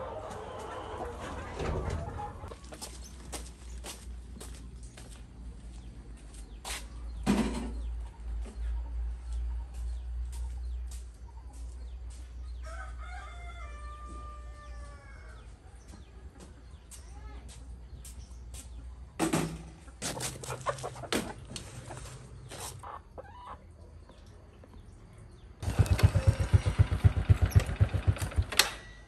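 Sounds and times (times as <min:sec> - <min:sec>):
chickens: 0:00.0 - 0:03.4, 0:06.9 - 0:26.4
rooster crowing: 0:12.6 - 0:15.5.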